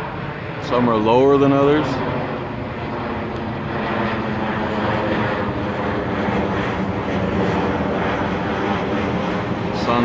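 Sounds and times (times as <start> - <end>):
airplane engines roaring: 0.0 - 10.0.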